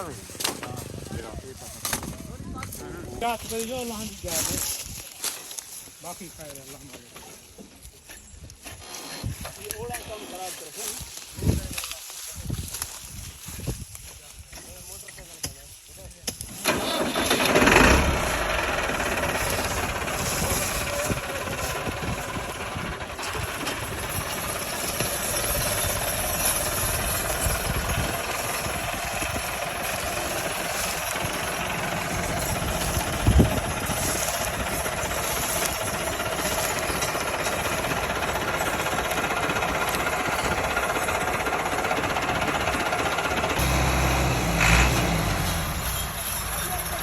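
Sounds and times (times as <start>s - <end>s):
diesel tractor engines running: 16.3s - 47.0s.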